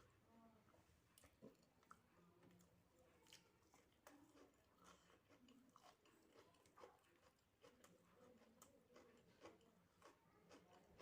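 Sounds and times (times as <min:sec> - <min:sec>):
faint close-up chewing: 0:00.7 - 0:11.0.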